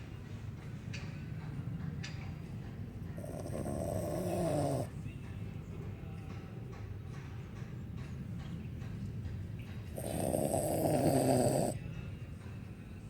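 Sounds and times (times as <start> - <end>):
low rasping breaths: 3.1 - 5.1, 9.9 - 11.9
dog snoring: 3.2 - 5.0, 9.9 - 11.8.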